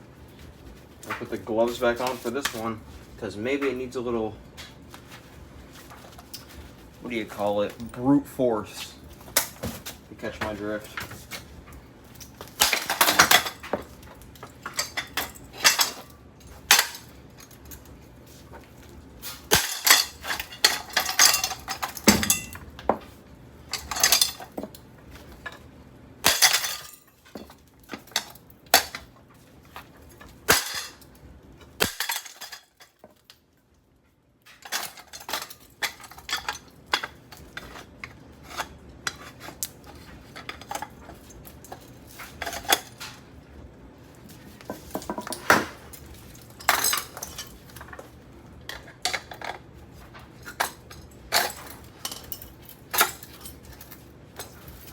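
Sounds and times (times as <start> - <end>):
metal clanks and bangs: 19.5 - 22.7.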